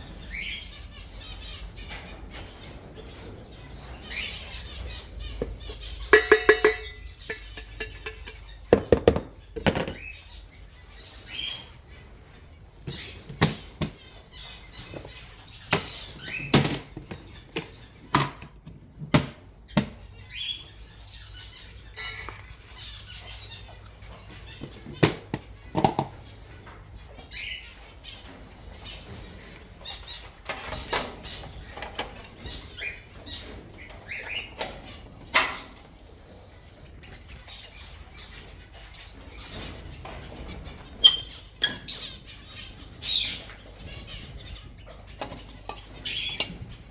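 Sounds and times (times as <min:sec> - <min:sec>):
bird chirps: 0:00.0 - 0:18.1
birds fluttering: 0:00.0 - 0:46.9.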